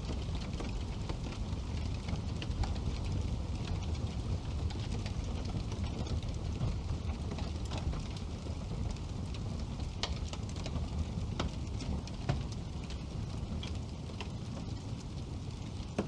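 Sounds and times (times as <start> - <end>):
burning logs popping: 0.0 - 16.0
low rumble of flame: 0.0 - 16.0
wood fire crackling: 0.0 - 16.0.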